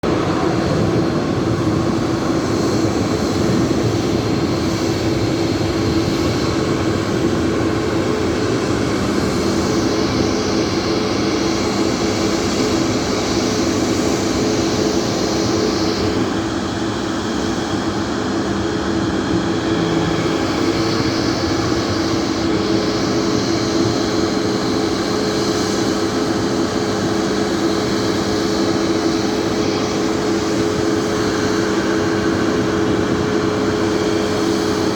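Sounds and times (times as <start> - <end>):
jet engines running: 0.0 - 34.9
low hum: 18.8 - 22.9.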